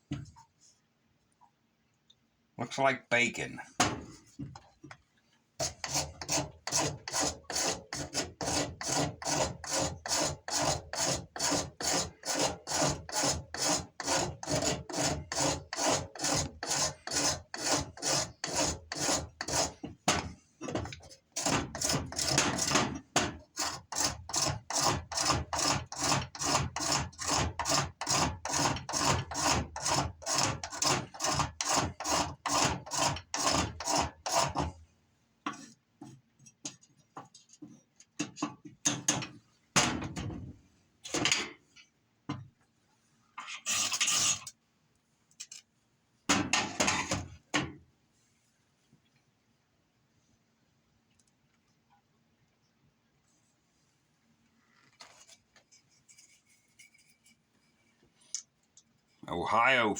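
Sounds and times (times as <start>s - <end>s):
blade scraping wood: 5.6s - 19.9s, 20.7s - 22.9s, 23.5s - 34.8s.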